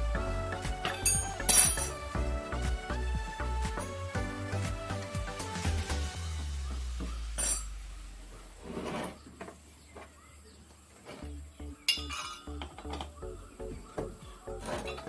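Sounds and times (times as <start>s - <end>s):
metal tools clinking: 1.0s - 2.0s, 7.4s - 7.7s, 11.9s - 13.1s.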